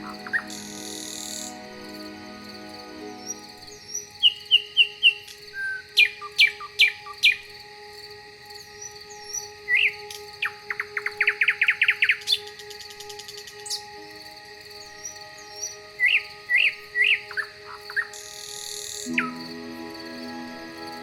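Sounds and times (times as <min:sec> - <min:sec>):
songbirds singing: 0:00.0 - 0:21.0.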